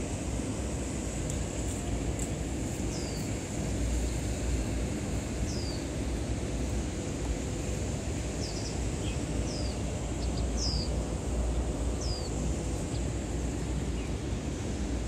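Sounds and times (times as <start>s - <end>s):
low city rumble: 0.0s - 15.0s
bird chirping: 8.4s - 11.0s, 12.0s - 13.0s.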